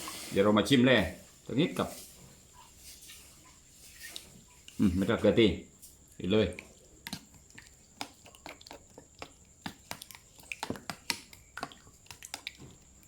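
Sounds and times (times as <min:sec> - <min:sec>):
person chewing and lip smacking: 0:06.5 - 0:13.0.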